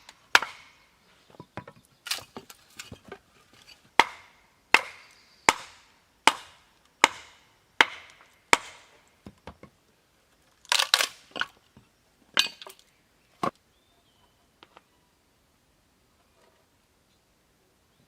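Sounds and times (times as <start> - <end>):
wood chopping blows: 0.0 - 0.8, 4.0 - 9.0
wood cracking and knocking: 1.3 - 4.2.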